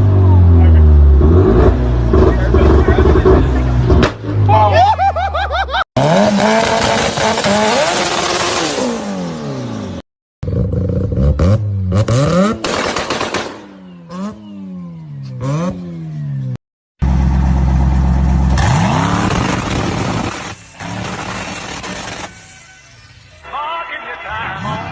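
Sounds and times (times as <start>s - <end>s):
car engines revving with crackling pops: 1.4s - 4.5s, 6.0s - 8.8s, 11.2s - 16.6s, 18.4s - 22.8s.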